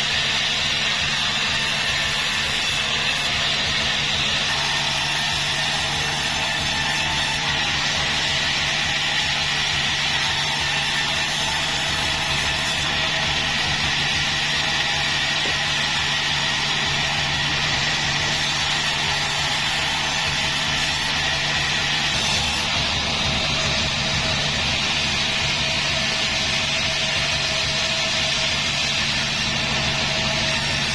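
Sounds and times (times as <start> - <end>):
high machine whine: 0.0 - 30.9
sawmill machinery drone: 0.0 - 30.9.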